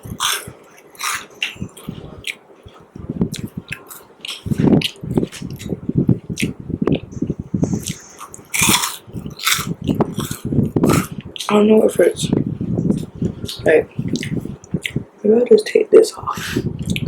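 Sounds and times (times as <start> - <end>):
chewing and crunching food: 0.0 - 15.1, 16.5 - 17.0.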